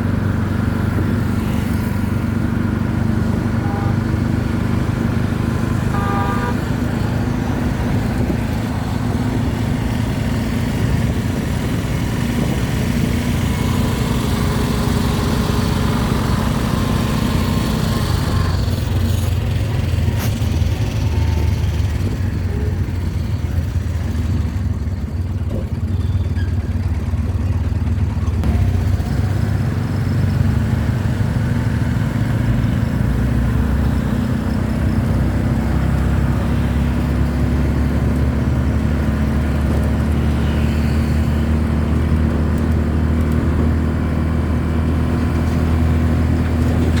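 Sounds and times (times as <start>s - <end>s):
low engine drone: 0.0s - 25.0s.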